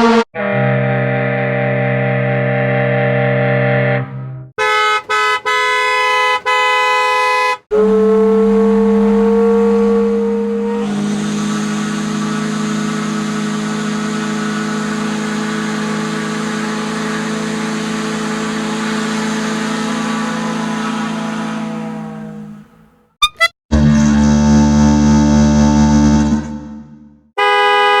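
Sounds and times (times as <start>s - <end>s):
horn honking harsh blasts: 0.0s - 3.2s, 4.6s - 24.2s, 27.4s - 28.0s
steam foghorn blast with hiss: 7.7s - 22.7s.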